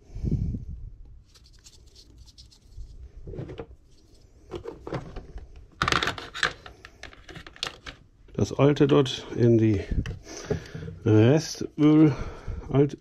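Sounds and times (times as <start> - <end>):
clicks knocks and rubbing: 4.5 - 8.0.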